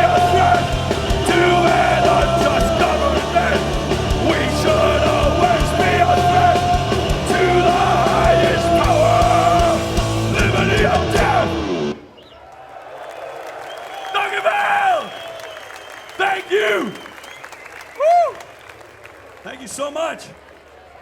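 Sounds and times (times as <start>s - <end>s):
punk band playing live: 0.0s - 12.0s.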